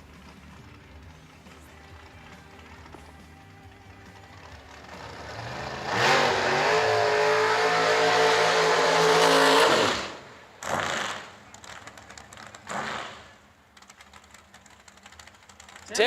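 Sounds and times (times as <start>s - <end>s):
engine throttle blips: 0.0s - 16.0s
race car engine revving: 3.9s - 16.0s.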